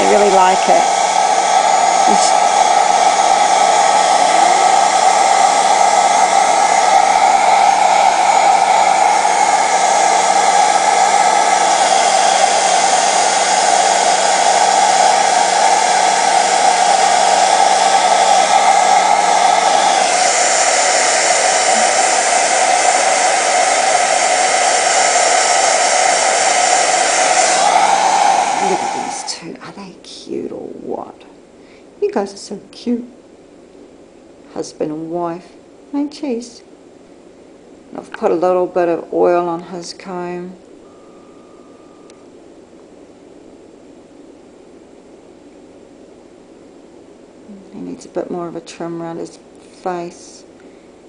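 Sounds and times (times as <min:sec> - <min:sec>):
blow dryer running: 0:00.0 - 0:29.7.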